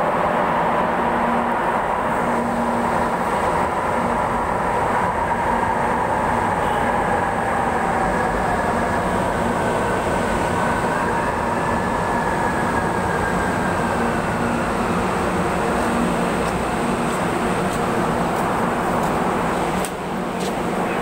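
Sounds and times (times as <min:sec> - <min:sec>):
train running noise: 0:00.0 - 0:21.0.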